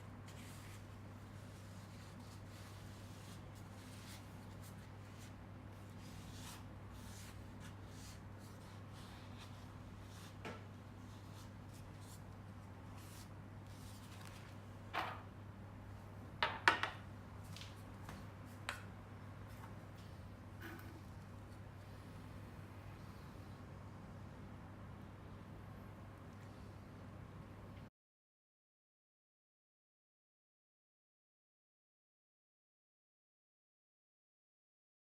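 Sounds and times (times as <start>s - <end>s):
steady low hum: 17.0s - 27.9s.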